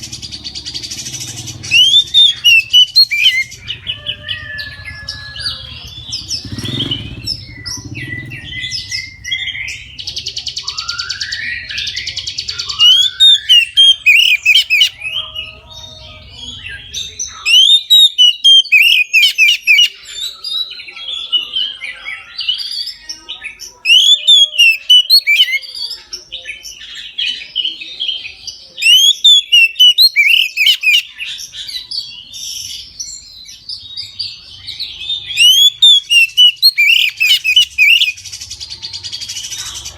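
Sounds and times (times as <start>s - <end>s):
bird singing whistled phrases: 1.6s - 15.9s, 16.5s - 20.5s, 23.9s - 25.7s, 28.8s - 33.6s, 34.7s - 39.7s.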